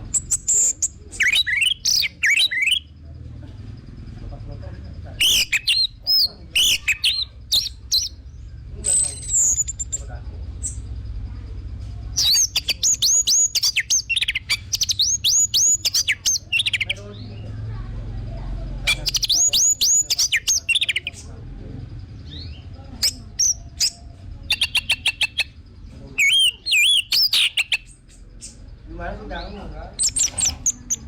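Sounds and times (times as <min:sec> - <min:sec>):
thrush singing whistled notes: 0:00.0 - 0:03.0, 0:05.2 - 0:08.2, 0:08.9 - 0:10.8, 0:12.2 - 0:17.3, 0:18.8 - 0:21.3, 0:26.2 - 0:31.0.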